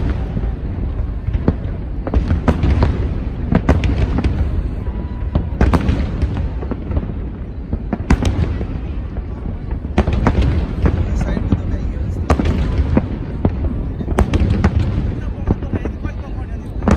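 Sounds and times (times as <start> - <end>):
fireworks bangs: 0.0 - 16.9.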